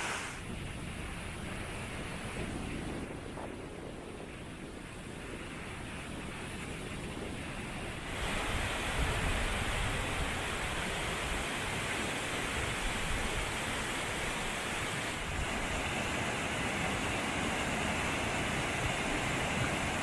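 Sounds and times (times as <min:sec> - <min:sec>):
waterfall rushing: 0:08.1 - 0:20.0.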